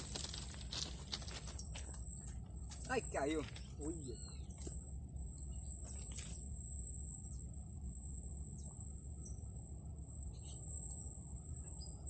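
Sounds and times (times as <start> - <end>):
insect drone: 0.0 - 12.0
faint bird chirps: 3.6 - 4.6, 10.2 - 12.0.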